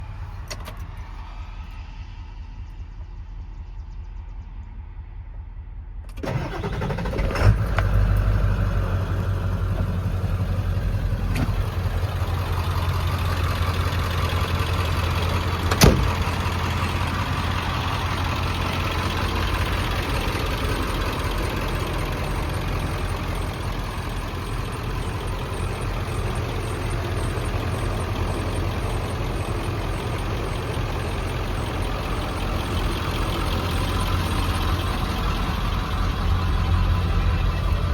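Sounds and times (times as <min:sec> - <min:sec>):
truck engine cranking and idling: 0:00.0 - 0:37.9.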